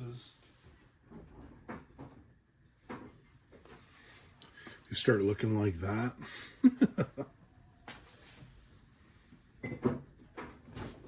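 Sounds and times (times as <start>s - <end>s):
objects knocking and clattering: 1.0s - 3.8s, 9.6s - 11.0s.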